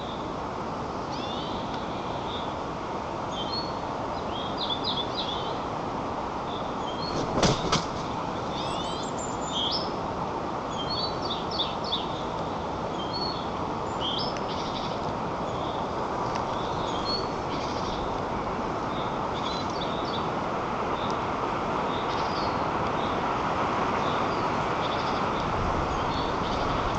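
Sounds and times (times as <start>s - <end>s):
songbirds chirping and trilling: 0.0s - 26.9s
steady rushing hiss: 5.1s - 26.9s
sharp knocks: 7.2s - 8.1s.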